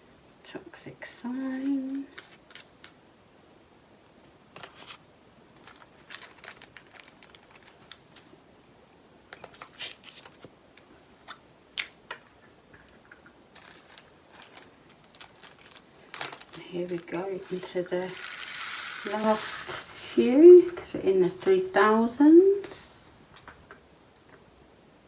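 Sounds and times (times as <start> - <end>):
plastic bags crinkling: 5.6 - 8.3, 13.5 - 23.6
beads pouring into plastic pots: 13.6 - 23.6.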